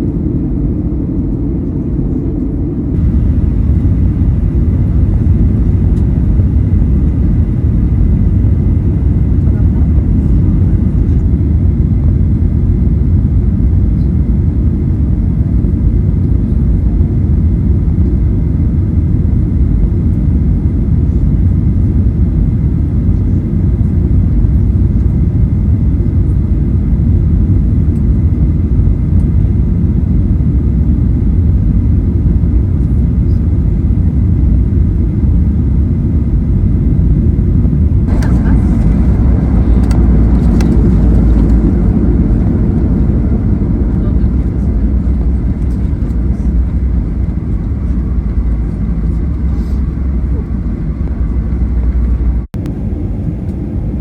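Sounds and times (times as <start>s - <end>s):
airplane cabin engine rumble: 0.0s - 54.0s
faint steady whine: 0.0s - 54.0s.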